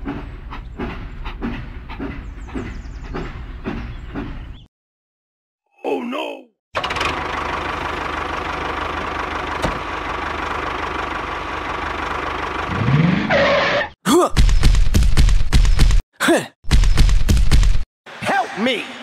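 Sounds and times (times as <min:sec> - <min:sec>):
tractor engine running: 0:06.8 - 0:13.0.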